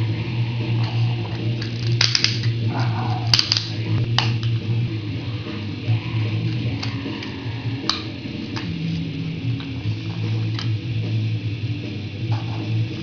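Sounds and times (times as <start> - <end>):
low hum: 0.0 - 13.0
plastic toy parts clicking: 1.6 - 2.6, 3.3 - 4.5.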